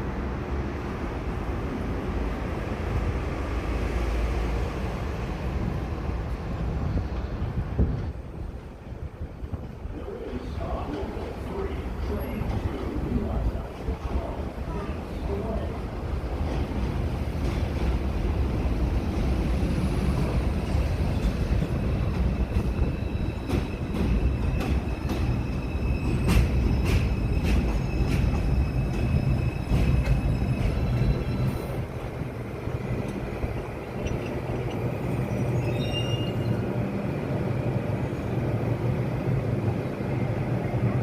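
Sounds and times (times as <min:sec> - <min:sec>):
subway train rumbling: 0:00.0 - 0:41.0
wheels clicking over rail joints: 0:32.2 - 0:36.0
high-pitched wheel squeals: 0:35.3 - 0:36.6.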